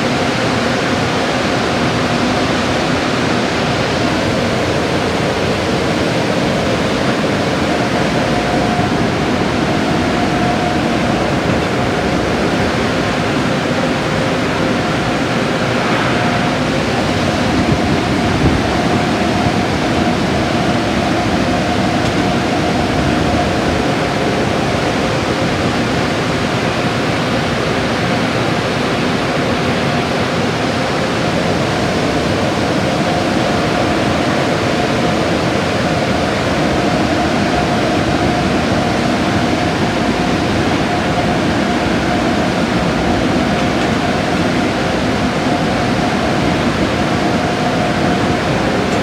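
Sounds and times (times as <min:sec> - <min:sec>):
car wash rushing noise: 0:00.0 - 0:49.0
faint whine: 0:02.8 - 0:27.9.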